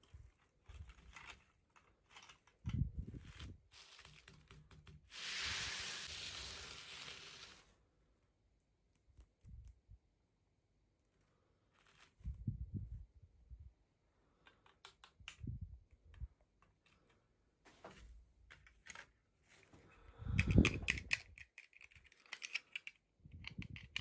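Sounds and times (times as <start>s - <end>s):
small clicks and taps: 14.4s - 17.2s.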